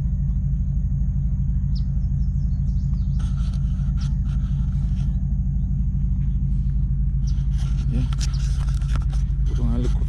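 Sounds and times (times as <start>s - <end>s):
steady low rumble: 0.0s - 10.0s
faint scratchy rustles: 7.2s - 10.0s.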